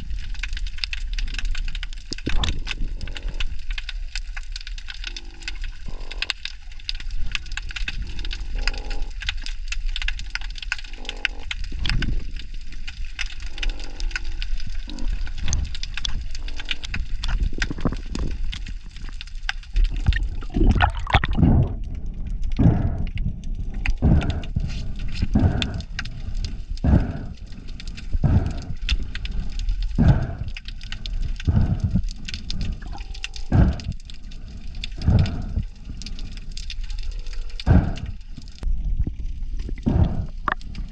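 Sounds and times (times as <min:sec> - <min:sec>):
constant underwater crackle: 0:00.0 - 0:40.9
heavy low thumps: 0:20.0 - 0:23.2.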